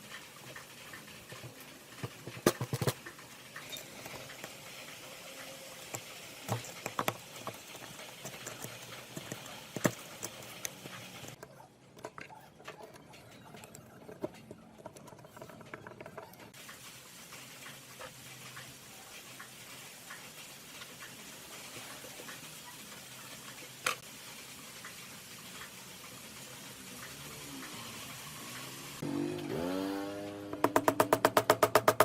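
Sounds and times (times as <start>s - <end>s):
metal parts clicking and knocking: 0.4s - 16.5s.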